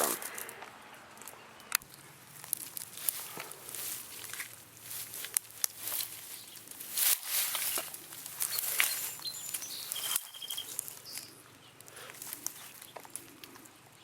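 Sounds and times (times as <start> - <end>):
rustling through leaf litter: 2.1 - 11.4
short high bird chirps: 8.4 - 11.4.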